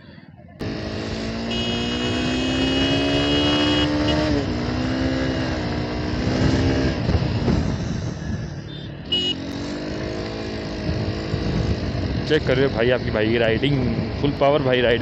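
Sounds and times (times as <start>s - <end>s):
motorcycle engine accelerating: 0.5s - 15.0s
high steady tone: 1.4s - 4.4s.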